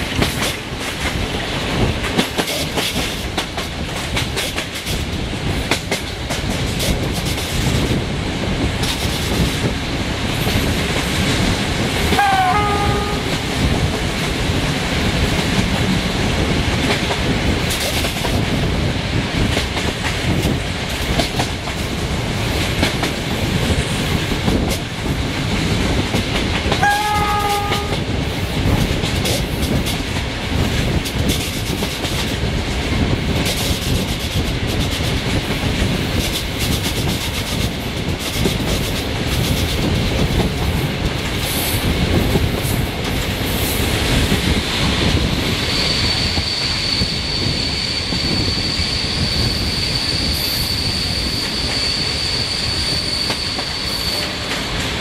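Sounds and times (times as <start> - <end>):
locomotive horn blasts: 12.1 - 13.5, 26.8 - 28.0.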